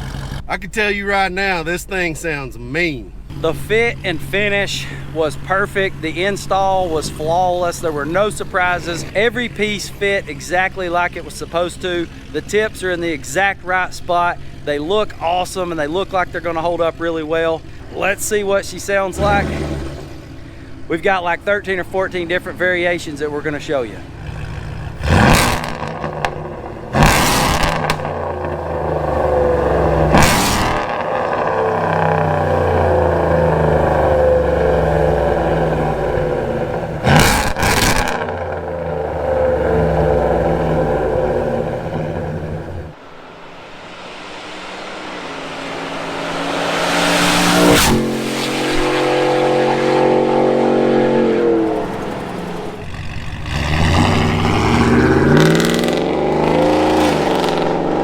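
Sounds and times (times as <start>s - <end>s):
truck passing at speed: 0.0s - 0.5s, 14.1s - 20.9s, 21.6s - 58.0s
truck engine revving: 0.0s - 58.0s.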